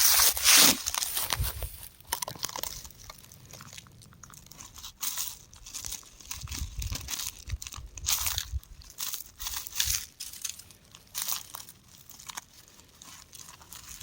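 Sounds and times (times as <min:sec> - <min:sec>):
rock crumbling and crunching: 0:00.0 - 0:14.0.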